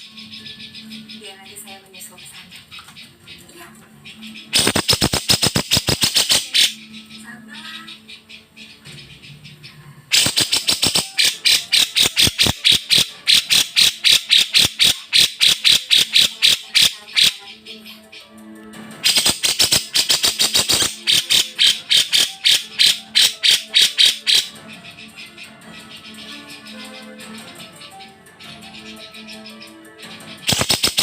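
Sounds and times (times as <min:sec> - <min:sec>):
bird singing sharp high notes: 0:04.1 - 0:09.5, 0:10.1 - 0:18.3, 0:19.0 - 0:25.2.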